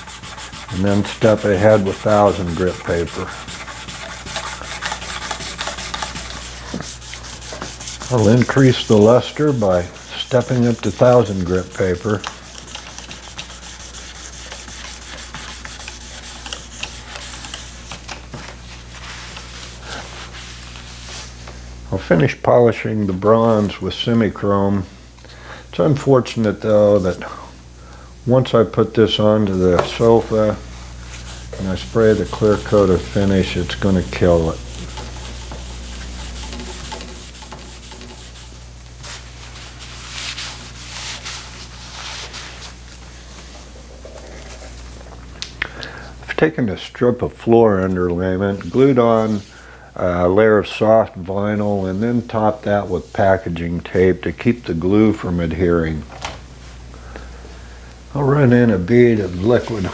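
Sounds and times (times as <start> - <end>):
sandpaper rubbing on metal: 0.0 - 21.4, 29.1 - 42.9.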